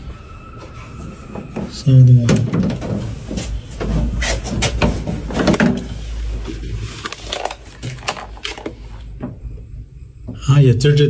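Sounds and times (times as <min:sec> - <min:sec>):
low electrical hum: 0:00.0 - 0:11.0
metal cabinet clicks and knocks: 0:02.2 - 0:09.4.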